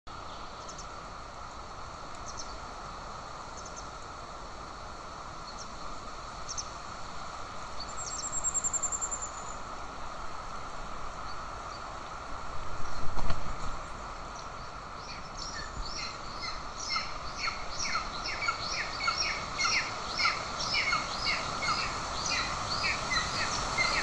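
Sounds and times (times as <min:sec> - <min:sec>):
outdoor background hiss: 0:00.1 - 0:24.0
high bird chirps: 0:15.1 - 0:24.0.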